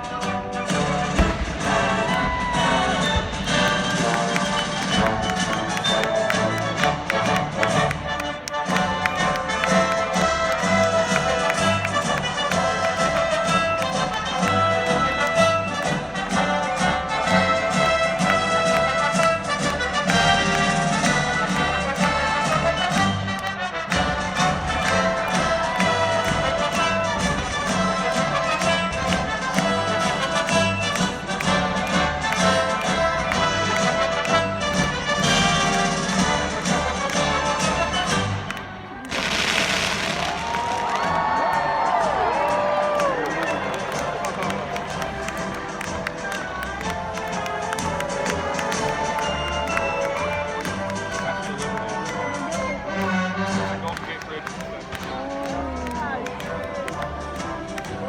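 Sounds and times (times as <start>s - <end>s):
orchestral music: 0.0s - 58.0s
sharp hits: 1.1s - 4.9s
sharp cracks: 1.1s - 8.8s, 38.1s - 48.9s.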